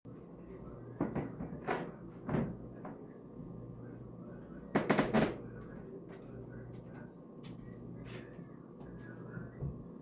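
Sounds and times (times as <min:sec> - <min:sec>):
steady low hum: 0:00.1 - 0:10.0
kitchen knocks and clunks: 0:00.9 - 0:03.1, 0:04.7 - 0:05.5.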